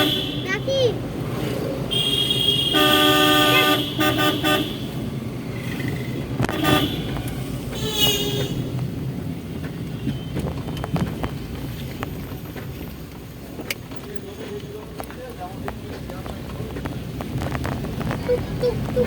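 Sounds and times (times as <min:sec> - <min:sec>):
vehicle horns honking: 0:00.0 - 0:00.7, 0:01.9 - 0:05.2, 0:06.4 - 0:08.8
road and engine noise: 0:00.0 - 0:19.0.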